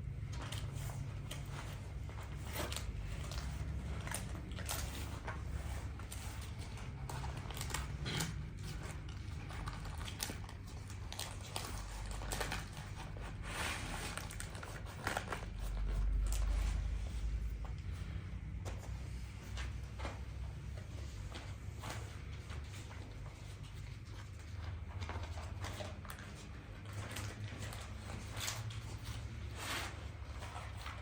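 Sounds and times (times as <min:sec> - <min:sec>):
crunching and crackling clicks: 0:00.0 - 0:16.8.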